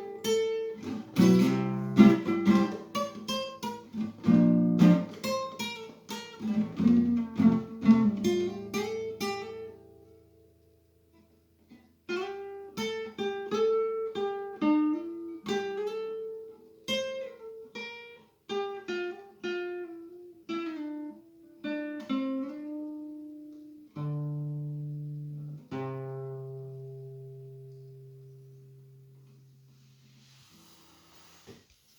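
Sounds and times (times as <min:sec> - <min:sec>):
guitar chords ringing: 0:00.0 - 0:10.6
acoustic guitar picked melody: 0:00.0 - 0:31.9.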